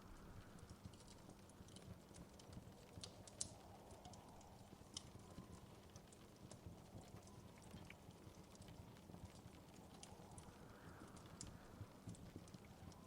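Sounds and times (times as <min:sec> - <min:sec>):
low steady rumble: 0:00.0 - 0:01.6
wood fire crackling: 0:00.0 - 0:13.0.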